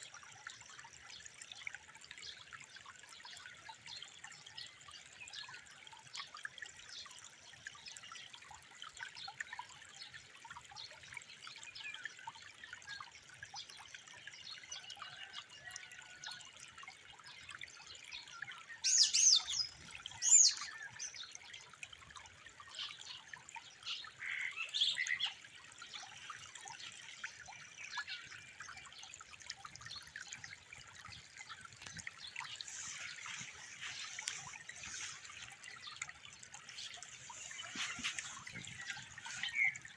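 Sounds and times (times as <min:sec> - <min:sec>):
running water trickling: 0:00.0 - 0:39.9
small birds chirping: 0:18.2 - 0:21.4, 0:31.1 - 0:39.9.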